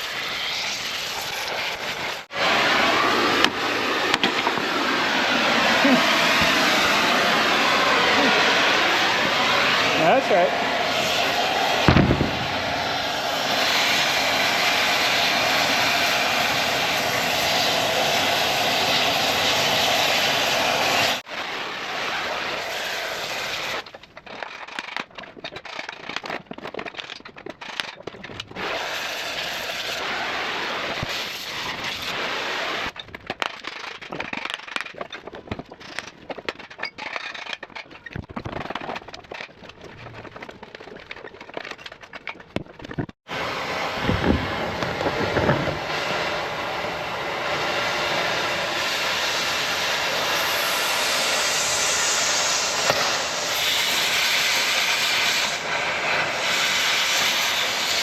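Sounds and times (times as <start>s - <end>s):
cutting torch hissing: 0.0s - 23.9s, 28.6s - 33.0s, 43.3s - 58.0s.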